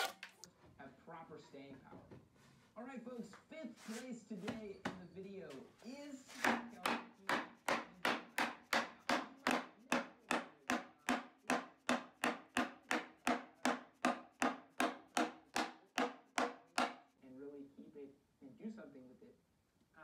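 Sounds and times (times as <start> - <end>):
plastic mallet knocking on wood: 6.4 - 17.0.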